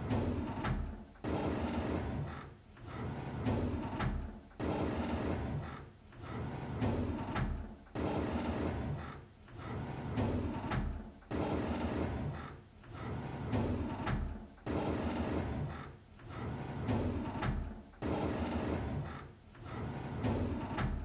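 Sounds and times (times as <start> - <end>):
drawer sliding open on runners: 14.9 - 21.0.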